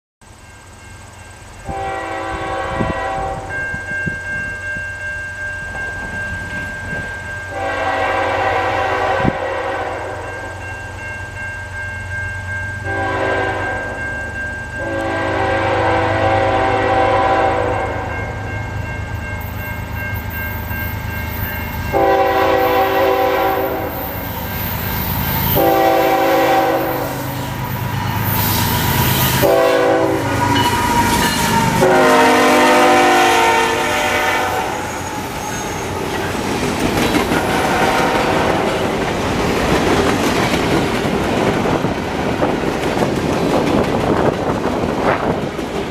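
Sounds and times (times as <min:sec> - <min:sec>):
train wheels on rails: 0:00.2 - 0:45.9
train horn blasts: 0:01.7 - 0:03.6, 0:07.5 - 0:10.6, 0:12.9 - 0:14.1, 0:14.8 - 0:18.4, 0:21.9 - 0:24.5, 0:25.4 - 0:36.3, 0:37.3 - 0:38.9.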